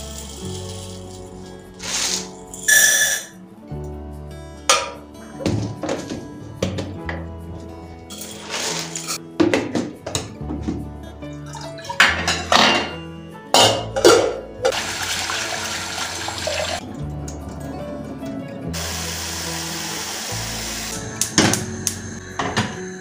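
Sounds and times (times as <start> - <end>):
background music: 0.0 - 23.0
kitchen utensils knocking: 12.0 - 13.0, 13.6 - 14.8
water running from tap: 14.7 - 16.8, 18.8 - 22.0.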